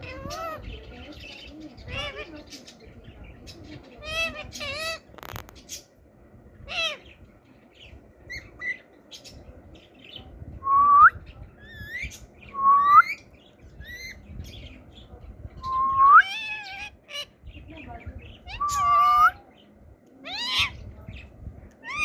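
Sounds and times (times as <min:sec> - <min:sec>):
parakeet squawk: 0:00.0 - 0:00.7, 0:04.0 - 0:05.8, 0:06.6 - 0:07.1, 0:16.2 - 0:17.4, 0:18.4 - 0:19.4, 0:20.2 - 0:20.8
parakeet whistled calls sweeping upward: 0:18.5 - 0:19.4.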